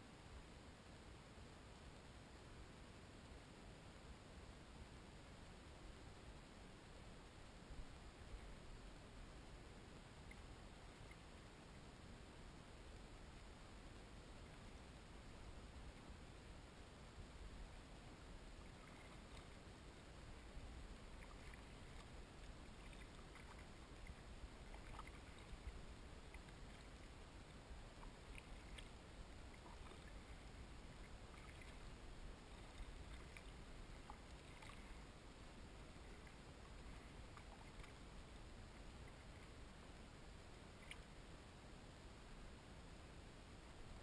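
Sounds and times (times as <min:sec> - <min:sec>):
low steady rumble: 0:00.0 - 0:44.0
water drips and splashes: 0:20.2 - 0:35.0, 0:36.0 - 0:38.0.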